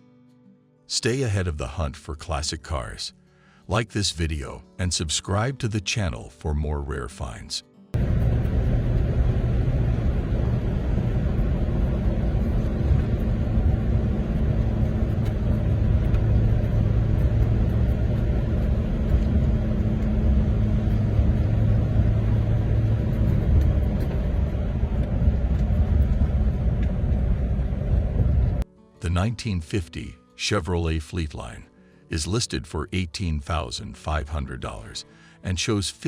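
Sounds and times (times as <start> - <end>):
car engine running: 8.0 - 28.6.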